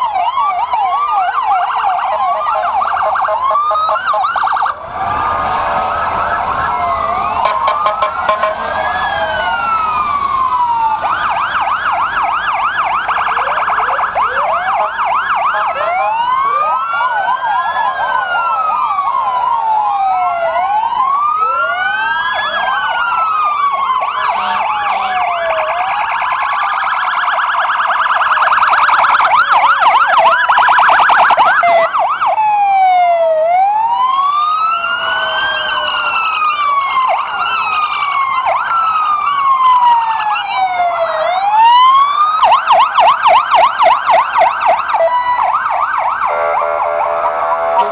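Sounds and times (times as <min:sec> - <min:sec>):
sirens wailing: 0:00.0 - 0:47.9
sirens yelping: 0:00.0 - 0:47.9.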